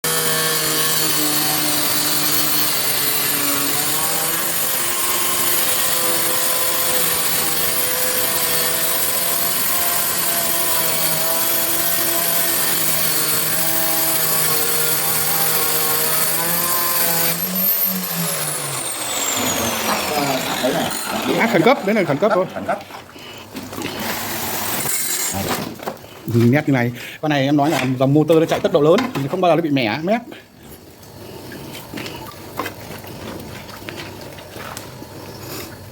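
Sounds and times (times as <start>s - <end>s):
tile cutting machine whining: 0.0s - 23.0s, 23.6s - 25.9s.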